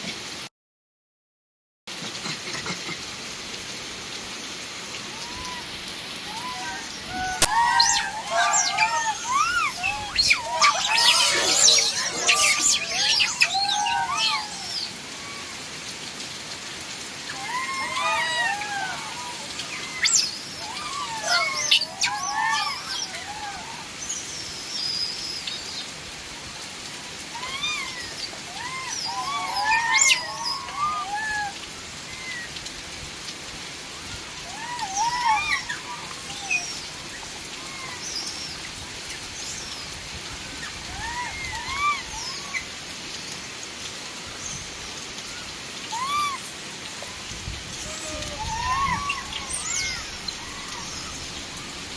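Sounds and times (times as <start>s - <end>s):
steady rain falling: 0.0s - 0.5s, 1.9s - 51.9s
short rising-and-falling calls: 5.1s - 15.7s, 17.3s - 25.8s, 27.3s - 32.5s, 34.5s - 38.7s, 45.9s - 51.9s.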